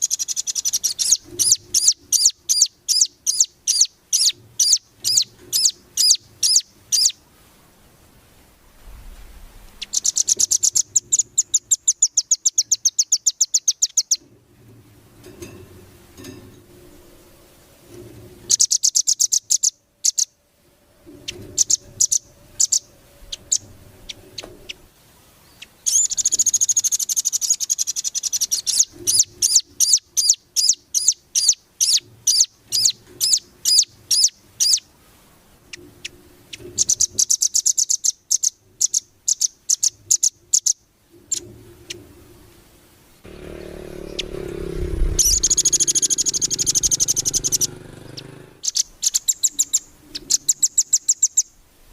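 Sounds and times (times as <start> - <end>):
songbird trills and chirps: 0.0 - 7.2, 9.7 - 14.3, 18.5 - 20.4, 21.1 - 34.9, 35.7 - 42.0, 45.0 - 51.6
low rumbling noise: 7.5 - 11.8, 14.3 - 18.6, 19.9 - 25.9, 41.0 - 48.7.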